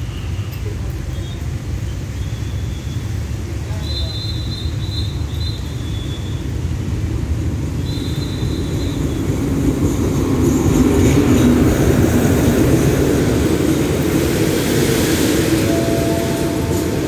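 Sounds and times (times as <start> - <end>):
diesel train passing: 0.0 - 17.0
steady whine: 11.6 - 17.0.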